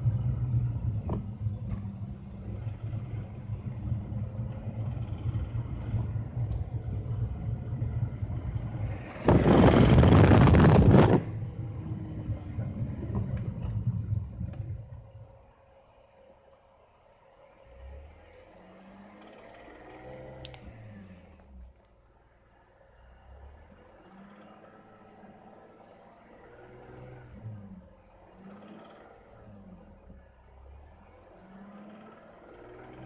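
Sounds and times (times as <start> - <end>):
car engine running: 0.0 - 18.6.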